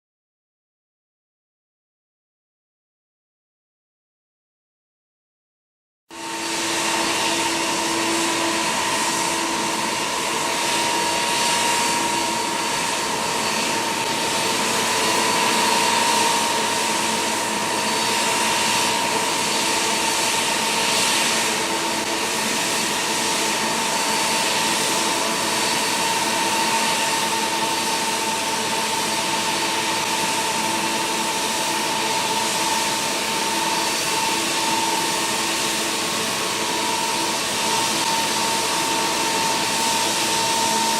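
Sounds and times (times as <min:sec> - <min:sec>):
jet engines running: 0:06.1 - 0:40.9.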